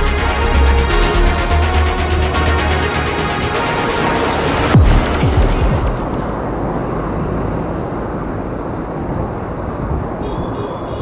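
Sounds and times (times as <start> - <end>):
music track: 0.0 - 6.4
street noise: 0.0 - 11.0
wind: 4.5 - 11.0.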